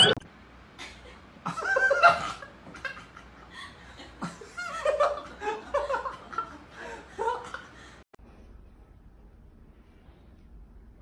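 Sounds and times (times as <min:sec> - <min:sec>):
person laughing in bursts: 0:00.8 - 0:07.8.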